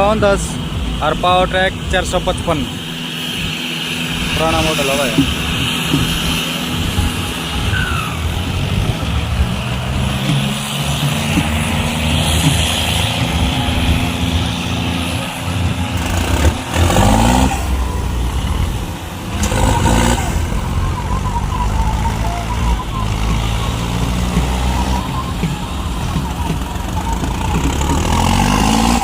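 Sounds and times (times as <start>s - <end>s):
diesel tractor engines under load: 0.0s - 29.0s.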